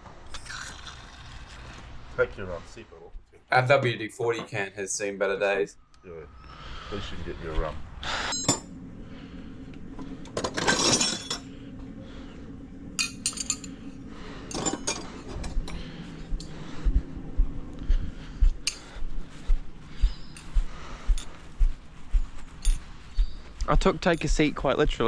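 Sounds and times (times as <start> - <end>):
metal tools clinking: 8.3 - 8.7, 10.4 - 11.5, 13.0 - 13.9, 14.5 - 15.7, 22.6 - 22.8
dull low knocks: 16.3 - 22.3.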